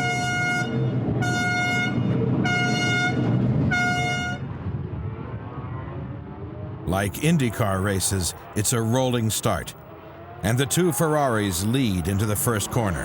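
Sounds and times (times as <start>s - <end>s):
short horn blasts: 0.0s - 4.4s.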